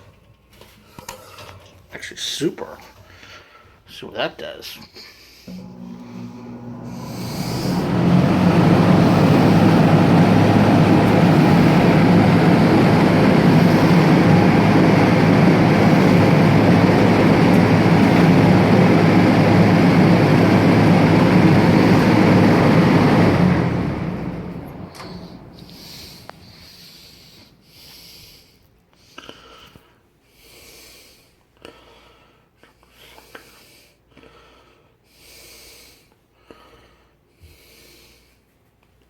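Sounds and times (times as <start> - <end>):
box fan motor hum and air rush: 5.5 - 27.6.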